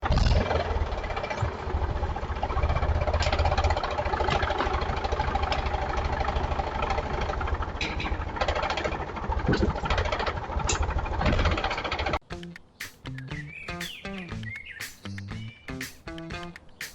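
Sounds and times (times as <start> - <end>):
vehicle engine idling with knocking: 0.7 - 12.2.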